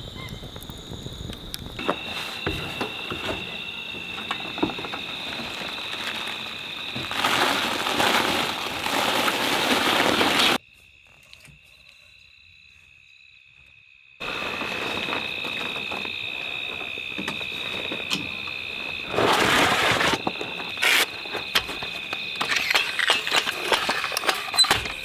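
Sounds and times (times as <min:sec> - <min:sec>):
rain pattering: 0:04.2 - 0:10.6.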